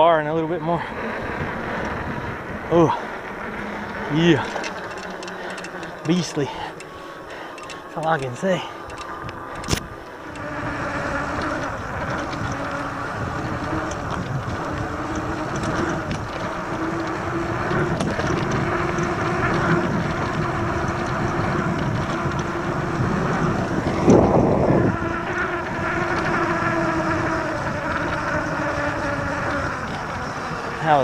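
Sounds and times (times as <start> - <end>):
faint electric motor hum: 0.0 - 31.0
wind rush and rolling noise: 0.0 - 31.0.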